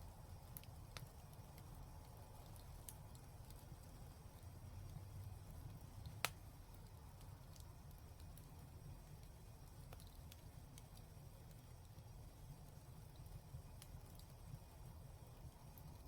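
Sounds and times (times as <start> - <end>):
fireplace fire crackling: 0.0 - 16.0
low steady rumble: 0.0 - 16.0
fire pops: 5.7 - 12.0.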